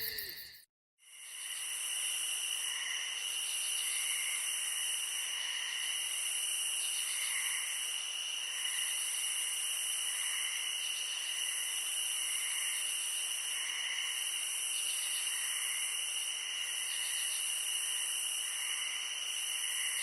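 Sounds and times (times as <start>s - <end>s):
insect chorus chirring: 0.0s - 0.6s.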